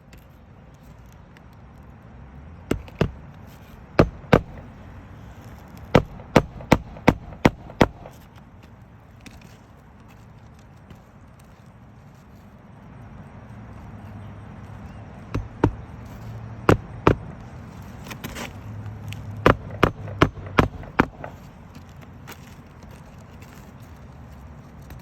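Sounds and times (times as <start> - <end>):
hammer striking roof shingles: 2.7 - 3.2, 4.0 - 4.8, 5.8 - 8.3, 15.3 - 15.9, 16.7 - 18.5, 19.4 - 21.5.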